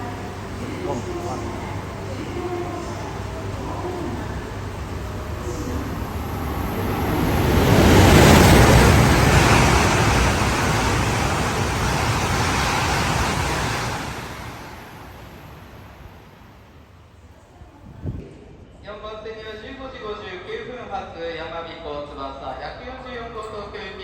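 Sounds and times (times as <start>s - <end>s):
train passing: 0.0s - 17.5s.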